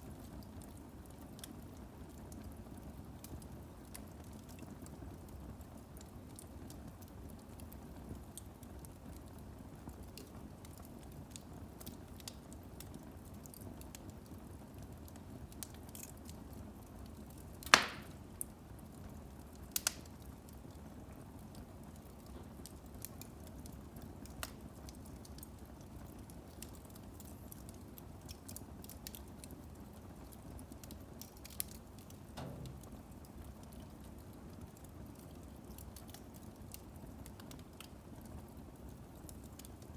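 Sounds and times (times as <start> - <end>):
fire crackling: 0.0 - 39.9
fire rumbling: 0.0 - 39.9
firewood popping: 17.3 - 18.6, 19.5 - 20.2, 24.0 - 25.5, 30.6 - 34.8.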